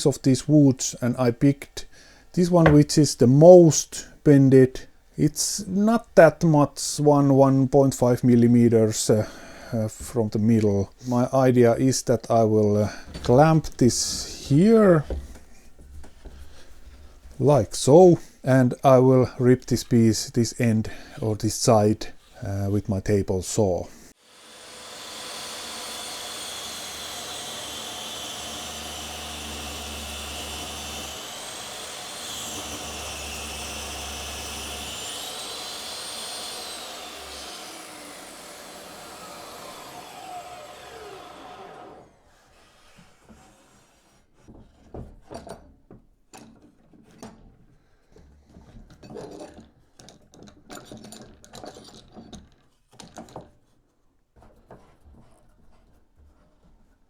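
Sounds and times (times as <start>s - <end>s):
table saw cutting wood: 2.5s - 2.9s, 24.2s - 44.3s
saw blade winding down: 2.6s - 2.8s, 24.2s - 42.9s
wood knocks and clicks: 2.6s - 2.9s.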